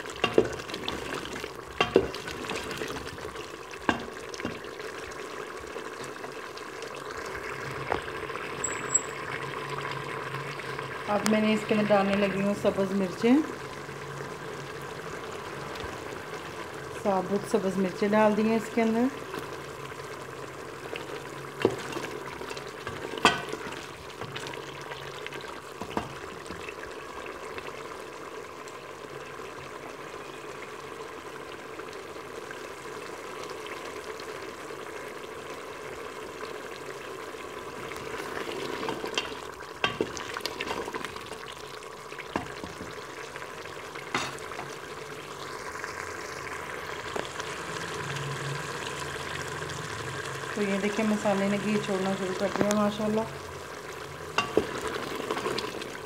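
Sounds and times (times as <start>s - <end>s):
food sizzling in oil: 0.0s - 56.0s
spoon knocking metal pot: 8.6s - 9.2s.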